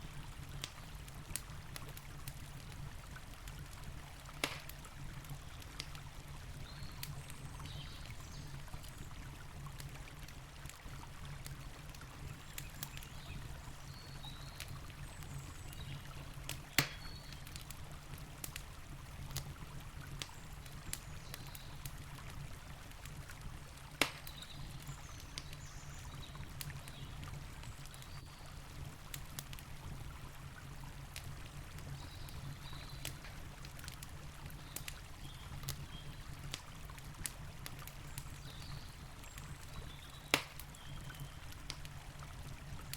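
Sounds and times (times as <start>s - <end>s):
campfire crackling and popping: 0.0s - 42.9s.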